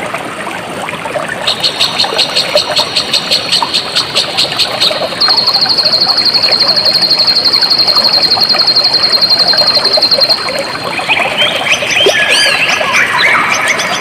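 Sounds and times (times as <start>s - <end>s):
stream trickling: 0.0s - 14.0s
high pulsing trill: 1.6s - 12.2s.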